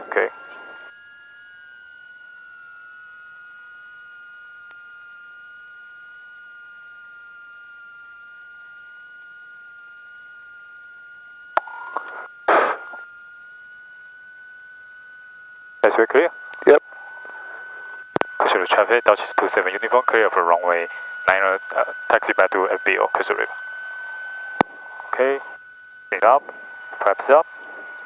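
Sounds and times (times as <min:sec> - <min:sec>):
high-pitched electrical whine: 0:00.0 - 0:28.0
short bursts of noise: 0:11.6 - 0:13.0.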